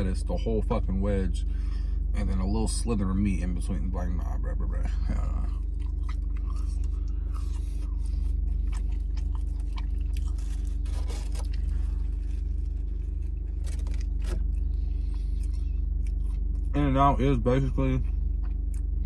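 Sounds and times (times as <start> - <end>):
low hum: 0.0 - 19.0
person chewing food: 4.9 - 16.7, 18.2 - 19.0.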